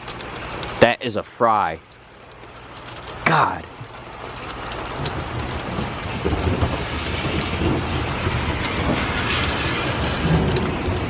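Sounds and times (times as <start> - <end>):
falling rain hiss: 0.0 - 11.0
thunder rumbling: 2.6 - 11.0
lightning strike: 5.2 - 11.0.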